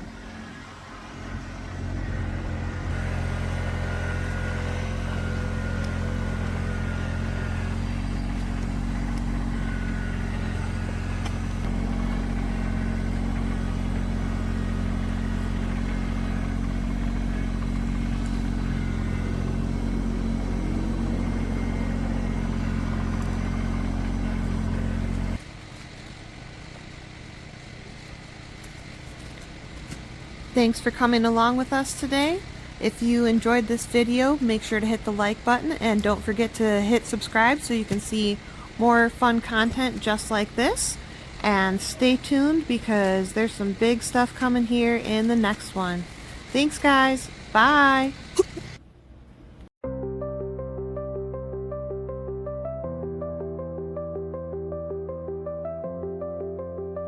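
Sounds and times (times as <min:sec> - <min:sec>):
vehicle engine running: 0:00.0 - 0:49.7.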